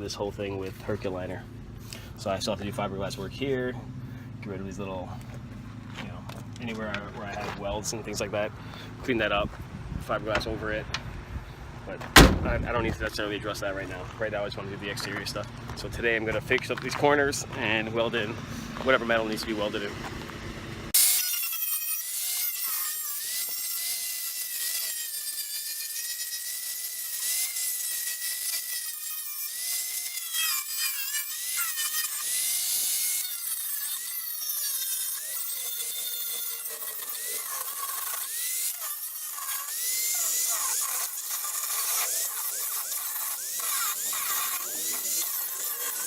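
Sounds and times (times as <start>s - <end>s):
rotary power tool whining: 16.4s - 46.0s.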